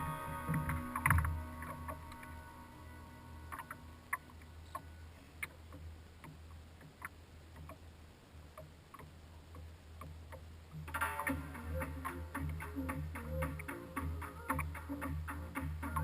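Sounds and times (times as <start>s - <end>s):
water dripping: 3.4s - 16.0s.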